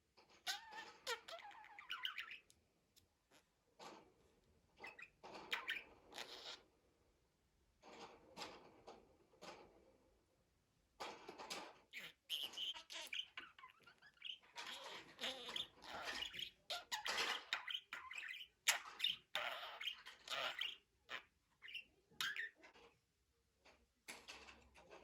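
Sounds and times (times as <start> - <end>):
budgerigar chattering and warbling: 0.5 - 2.5, 4.8 - 6.6, 11.9 - 22.6.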